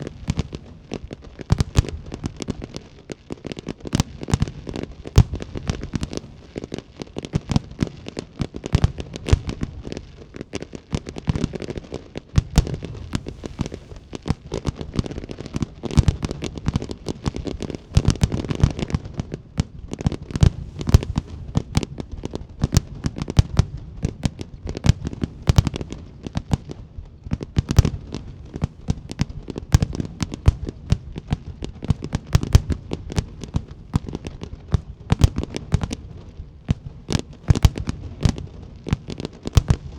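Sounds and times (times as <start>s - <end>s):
fireworks bursting and crackling: 0.0s - 39.9s
low rumble: 12.4s - 15.9s, 20.2s - 23.0s.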